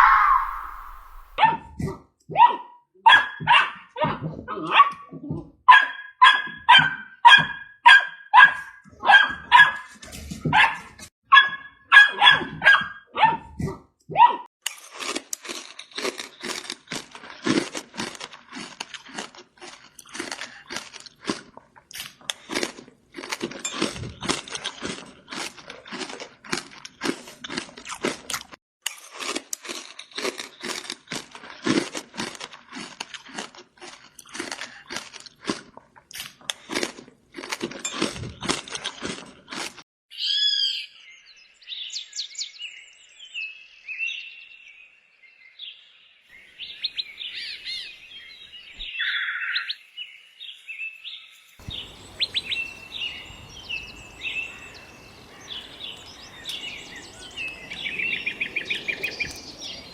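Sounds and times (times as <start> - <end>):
puppy yapping: 0.0 - 1.6.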